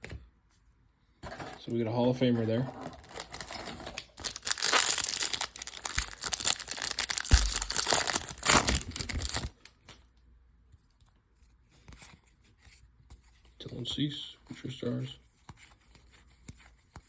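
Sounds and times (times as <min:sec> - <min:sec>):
card pack wrapper tearing: 0:03.0 - 0:09.8.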